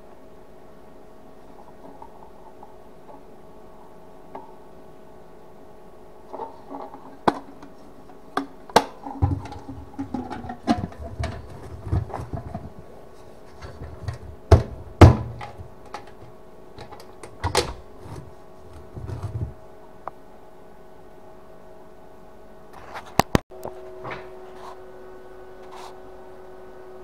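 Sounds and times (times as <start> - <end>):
dull thuds and scraping: 8.7 - 16.3, 17.4 - 19.6.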